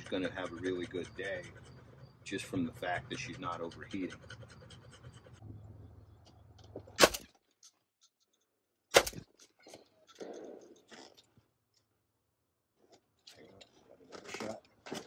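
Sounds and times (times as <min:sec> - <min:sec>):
shotgun shots: 0:07.0 - 0:07.3, 0:08.9 - 0:09.3.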